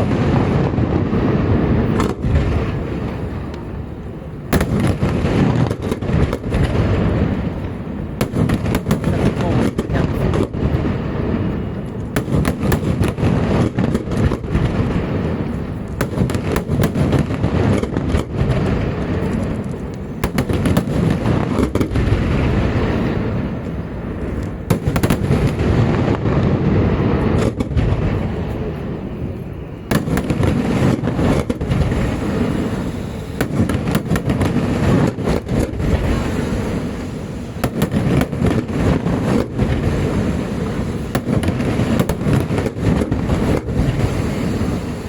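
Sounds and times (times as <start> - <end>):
firework bangs and cracks: 0.0 - 45.0.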